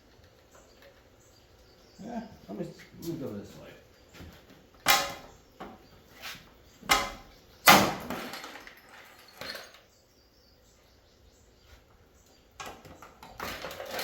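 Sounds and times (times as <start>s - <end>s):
metal knocks and clanks: 6.9s - 7.2s.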